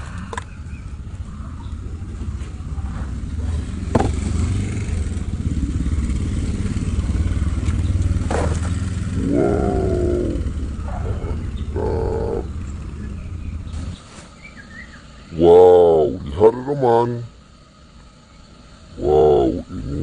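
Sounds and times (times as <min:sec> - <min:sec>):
motor engine rumbling: 0:00.0 - 0:20.0.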